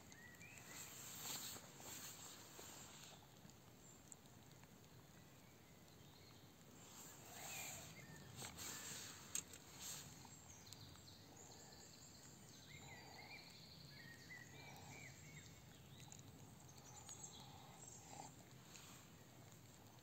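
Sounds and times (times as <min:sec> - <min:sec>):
faint bird chirps: 0:00.0 - 0:04.0, 0:05.2 - 0:19.3.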